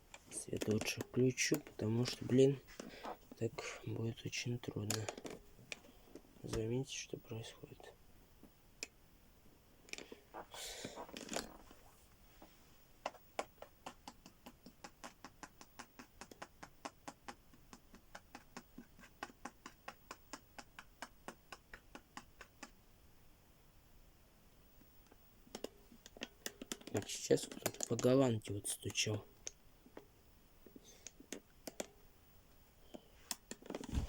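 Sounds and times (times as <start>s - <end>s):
faint rustle: 33.0s - 34.0s.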